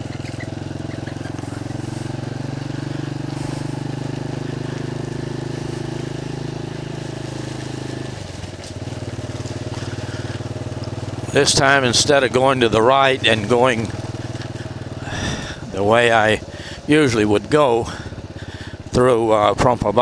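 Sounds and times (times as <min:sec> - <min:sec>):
small motorcycle engine running: 0:00.0 - 0:20.0.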